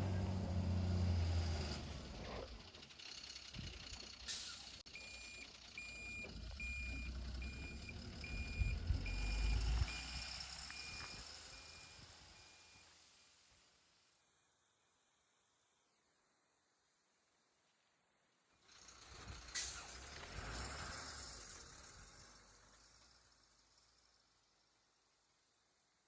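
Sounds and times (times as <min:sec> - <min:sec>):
diesel engine rumble: 0:00.0 - 0:12.4, 0:18.6 - 0:24.0
reversing alarm beeping: 0:04.9 - 0:13.0.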